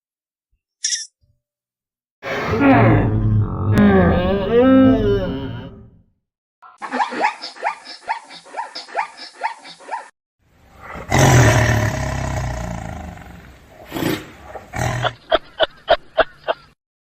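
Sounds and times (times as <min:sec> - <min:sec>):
animal roaring: 0:02.2 - 0:05.9, 0:10.7 - 0:15.2.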